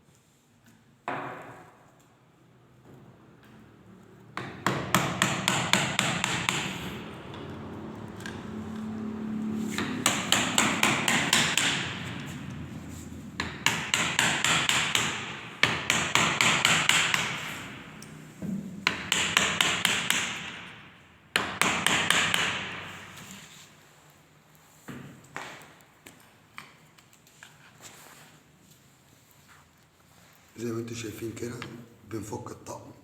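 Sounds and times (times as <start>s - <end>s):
hammer striking wood: 1.1s - 1.7s, 4.4s - 7.1s, 9.7s - 12.4s, 13.4s - 17.8s, 18.4s - 23.2s.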